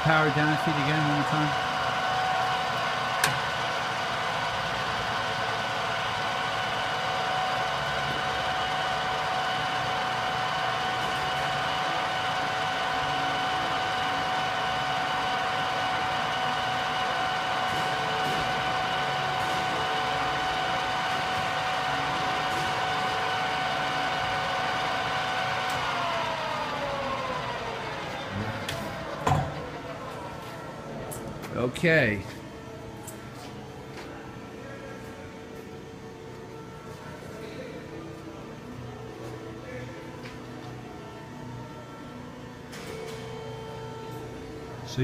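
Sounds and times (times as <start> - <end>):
drill press whining: 0.0 - 31.8.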